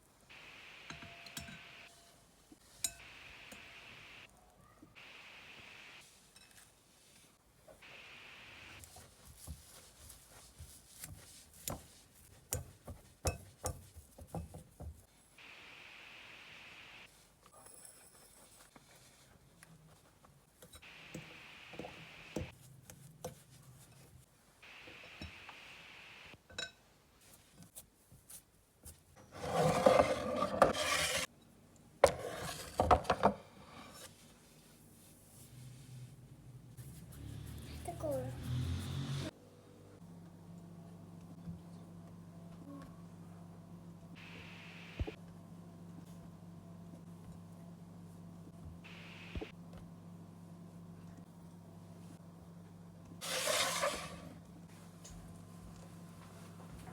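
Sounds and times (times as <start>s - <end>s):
steady hiss: 0.3s - 1.9s, 3.0s - 4.3s, 7.8s - 8.8s, 15.4s - 17.1s, 24.6s - 26.4s, 44.2s - 45.2s, 48.9s - 49.5s
rasping scrape: 29.3s - 31.3s, 32.1s - 32.8s, 53.2s - 54.4s.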